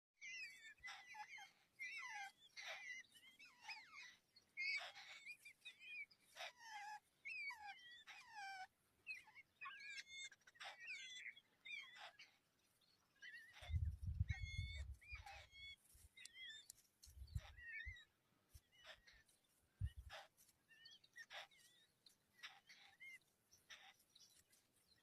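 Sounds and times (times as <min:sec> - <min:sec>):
baby bird chirping: 0:13.2 - 0:21.8, 0:22.4 - 0:25.0.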